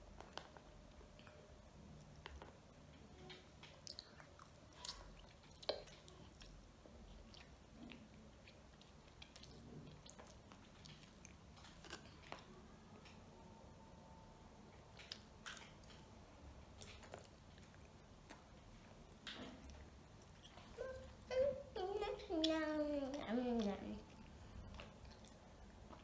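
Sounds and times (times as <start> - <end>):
soft chewing and mouth clicks: 0.0 - 13.4, 14.6 - 26.0.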